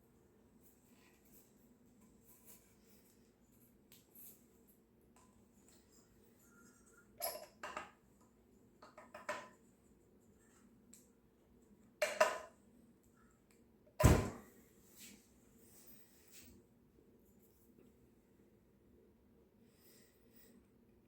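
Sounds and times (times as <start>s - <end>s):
thump: 14.0s - 14.4s.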